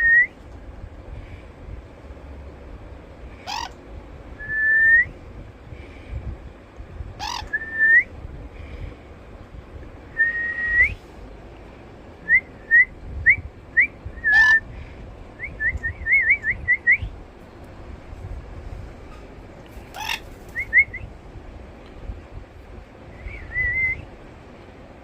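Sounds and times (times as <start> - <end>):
parrot screeching: 3.4 - 3.8, 7.2 - 7.5, 14.3 - 14.6, 19.9 - 20.3
parrot whistling: 7.2 - 8.1, 13.8 - 14.6.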